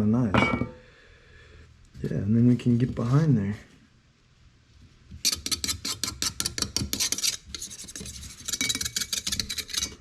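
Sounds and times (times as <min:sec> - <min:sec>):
scraping strokes: 0:05.2 - 0:10.0.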